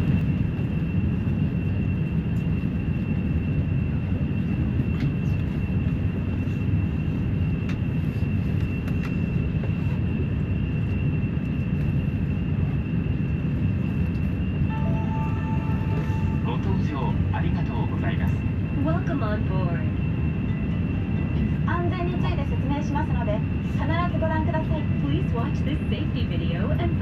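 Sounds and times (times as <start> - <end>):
airliner cabin rumble: 0.0 - 27.0
high steady whine: 6.1 - 27.0.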